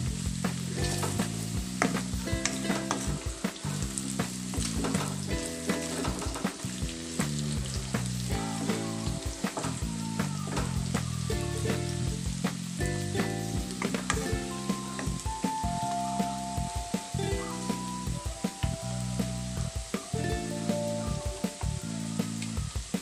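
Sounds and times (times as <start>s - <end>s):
soft background music: 0.0s - 23.0s
vegetables sizzling in oil: 0.0s - 23.0s
sharp crackles: 0.3s - 22.9s
wooden spatula scraping: 0.9s - 6.8s.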